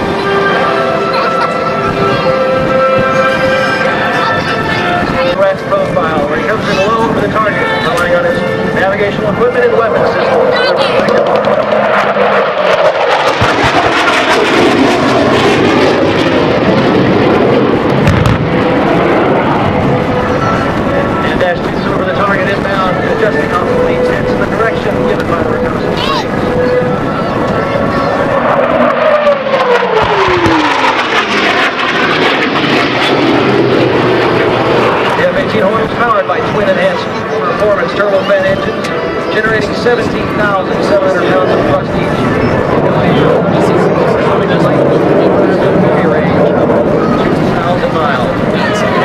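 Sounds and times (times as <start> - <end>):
jet engine roar: 0.0 - 49.0
deep thump: 18.0 - 18.5.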